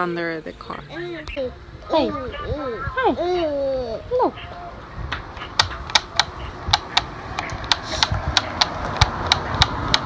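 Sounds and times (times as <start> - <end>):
sharp clicks or pops: 5.1 - 10.0.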